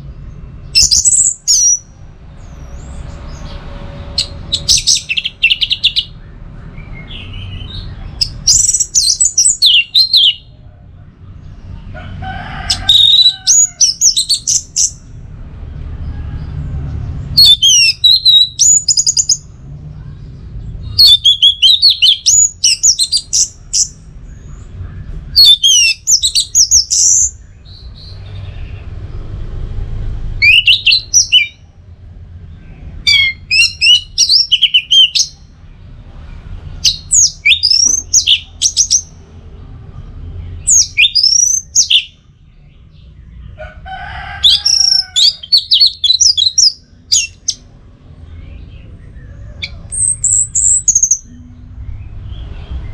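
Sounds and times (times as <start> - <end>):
bird whistling and twittering: 0.8 - 1.9, 4.2 - 10.5, 12.8 - 15.0, 17.4 - 19.5, 21.0 - 24.7, 25.3 - 28.2, 30.4 - 31.6, 33.0 - 35.4, 36.8 - 39.1, 40.6 - 42.2, 44.6 - 47.6, 49.2 - 51.4.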